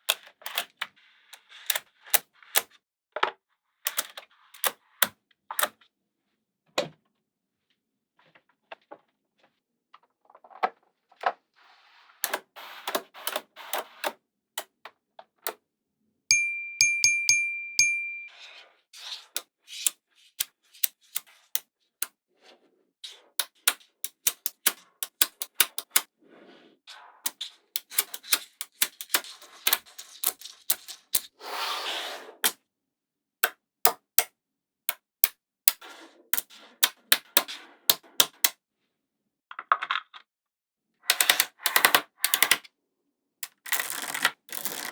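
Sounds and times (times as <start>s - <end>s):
high ringing tone: 16.3s - 18.4s
magnetic balls clicking: 23.4s - 26.1s.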